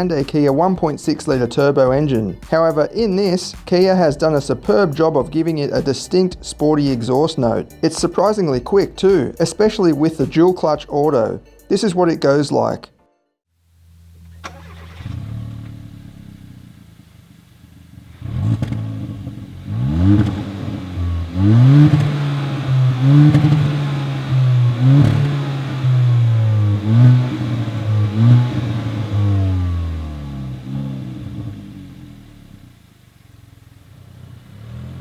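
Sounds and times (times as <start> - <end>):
car engine accelerating: 13.8 - 35.0
gear upshift rev drops: 14.2 - 17.0, 17.9 - 32.8.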